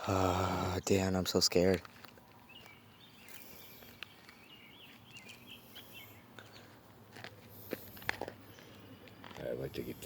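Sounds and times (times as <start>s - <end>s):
small bird chirping: 2.3s - 6.8s.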